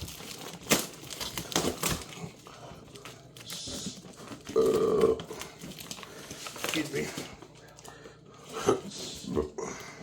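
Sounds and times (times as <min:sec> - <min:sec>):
packaging rustling: 0:00.0 - 0:08.1
man burping: 0:04.6 - 0:05.3.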